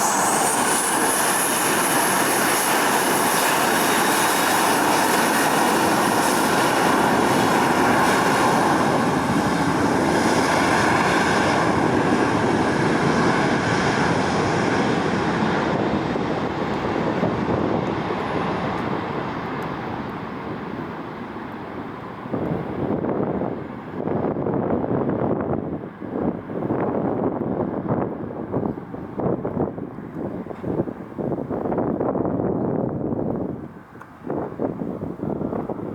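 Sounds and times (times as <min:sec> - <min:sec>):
high jet hiss: 0:00.0 - 0:02.0
jet engines running: 0:00.0 - 0:32.2.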